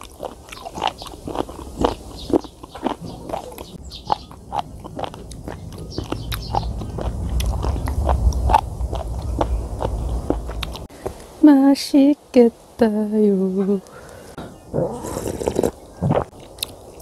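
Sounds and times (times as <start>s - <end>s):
wet crunchy chewing: 0.0s - 11.2s, 14.9s - 17.0s
wind rumble on microphone: 3.0s - 10.9s.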